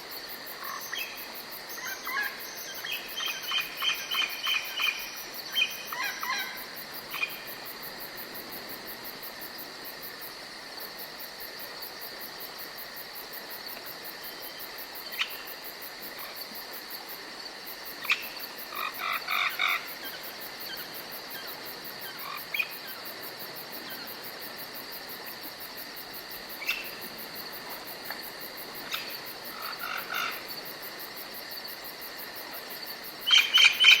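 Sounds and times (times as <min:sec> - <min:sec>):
crickets and insects chirring: 0:00.0 - 0:34.0.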